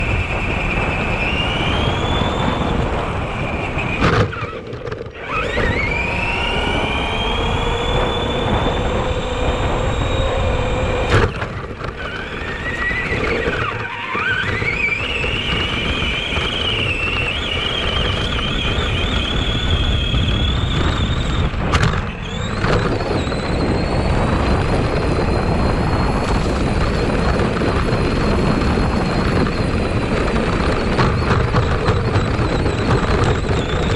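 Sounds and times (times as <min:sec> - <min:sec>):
drivetrain and tyre noise: 0:00.0 - 0:33.9
electric motor whining: 0:00.0 - 0:33.9.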